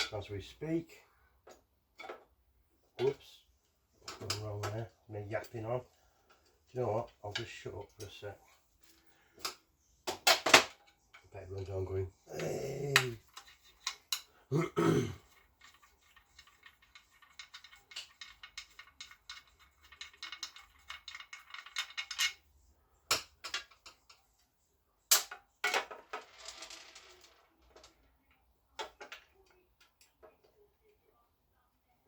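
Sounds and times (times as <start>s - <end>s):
hand tools clicking and clinking: 12.3s - 14.4s, 15.1s - 22.4s.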